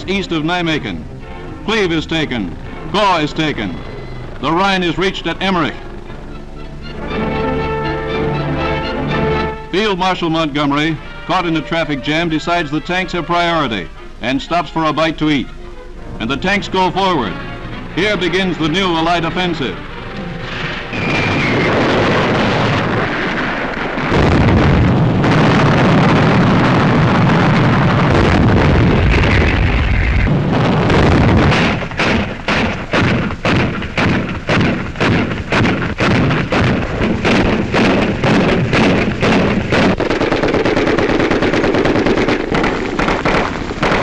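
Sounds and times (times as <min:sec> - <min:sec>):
gunfire: 0:19.6 - 0:44.0.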